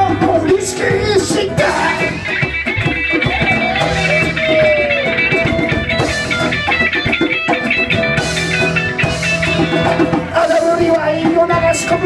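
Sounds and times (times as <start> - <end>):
bass: 0.0 - 12.0
electric guitar: 0.0 - 12.0
live band music: 0.0 - 12.0.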